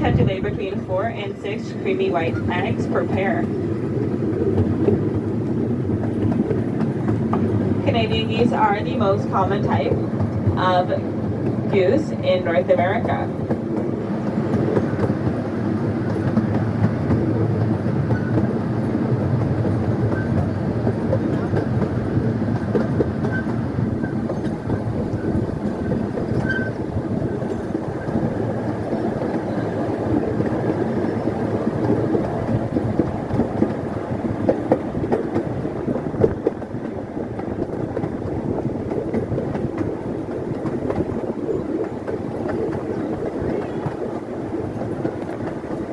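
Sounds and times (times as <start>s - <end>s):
train wheels rumbling on rail: 0.0s - 45.9s.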